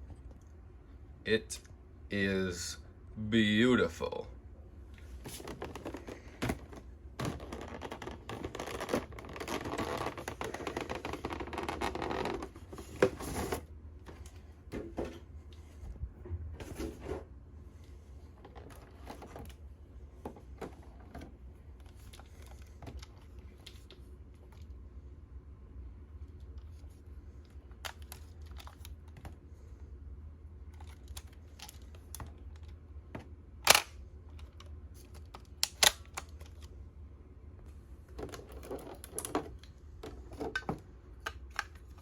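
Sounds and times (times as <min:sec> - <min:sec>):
plastic packaging rustling: 0:05.2 - 0:13.6.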